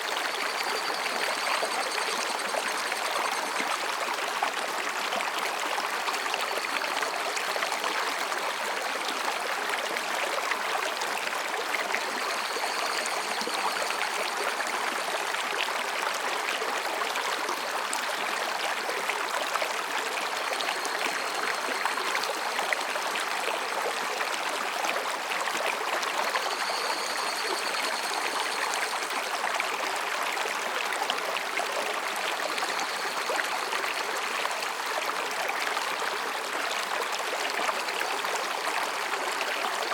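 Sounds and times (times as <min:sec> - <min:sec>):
stream babbling over rocks: 0:00.0 - 0:39.9
high cicada calls: 0:26.4 - 0:29.3.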